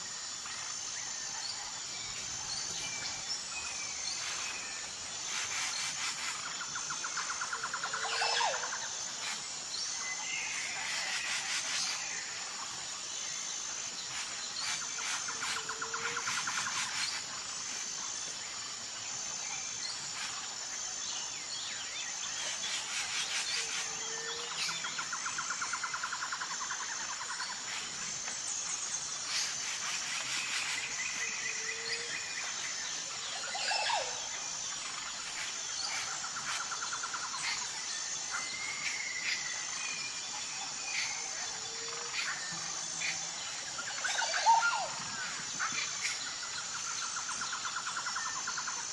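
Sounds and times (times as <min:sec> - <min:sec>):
high insect drone: 0:00.0 - 0:48.9.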